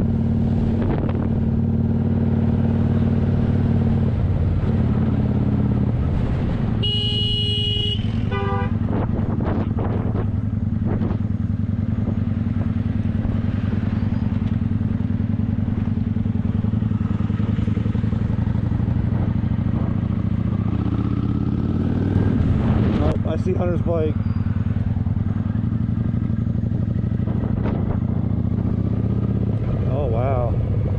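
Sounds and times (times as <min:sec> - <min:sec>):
motorcycle engine running: 0:00.0 - 0:30.9
horn beeping: 0:06.8 - 0:08.8.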